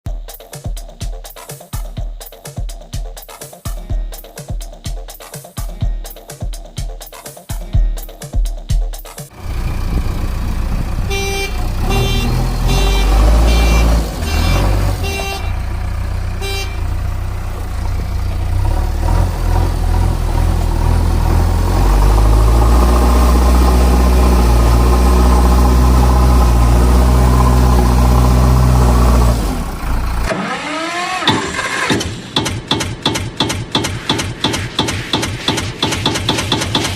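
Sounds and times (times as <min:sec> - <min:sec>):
vehicle engine rumble: 0:09.3 - 0:30.4
short horn beeps: 0:11.0 - 0:15.7, 0:16.3 - 0:17.1.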